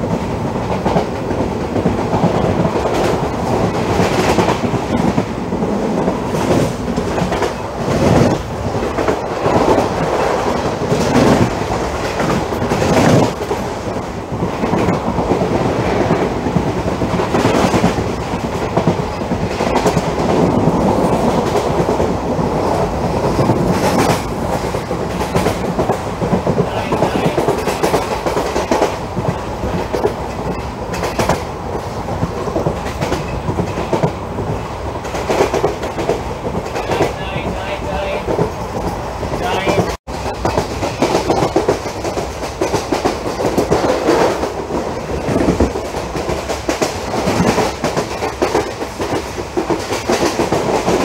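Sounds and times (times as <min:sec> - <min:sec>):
train wheels rumbling on rails: 0:00.0 - 0:51.0
wheels clacking over rail joints: 0:00.0 - 0:51.0.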